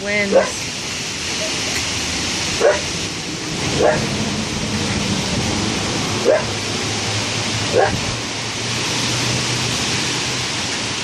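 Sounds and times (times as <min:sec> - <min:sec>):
rain: 0:00.0 - 0:11.0
storm wind: 0:00.0 - 0:11.0
dog barking: 0:02.6 - 0:02.9, 0:03.8 - 0:04.0, 0:06.2 - 0:06.5, 0:07.7 - 0:08.0.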